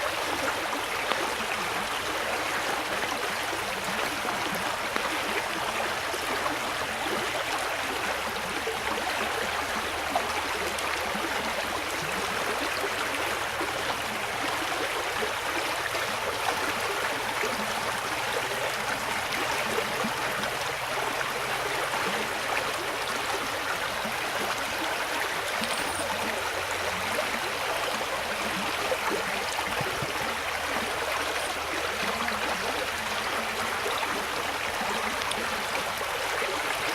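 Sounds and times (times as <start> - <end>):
brook babbling over stones: 0.0 - 36.9.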